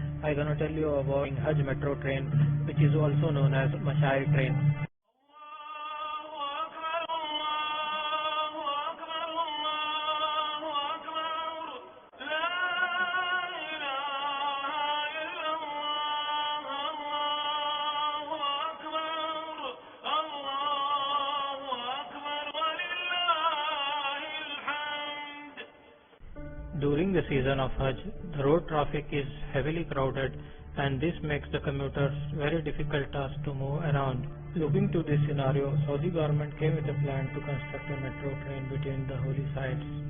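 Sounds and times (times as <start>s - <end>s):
solo voice singing: 5.3s - 25.7s, 33.4s - 40.0s.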